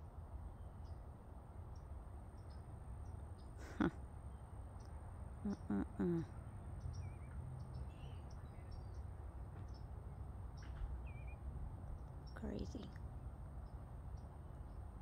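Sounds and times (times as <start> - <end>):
faint bird chirps: 0.5 - 15.0.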